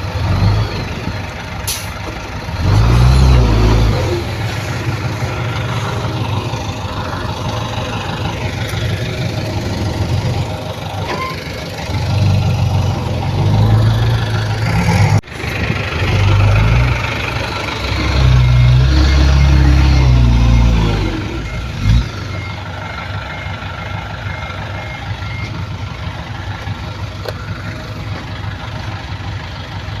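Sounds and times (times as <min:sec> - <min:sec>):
heavy machinery engines running: 0:00.0 - 0:30.0.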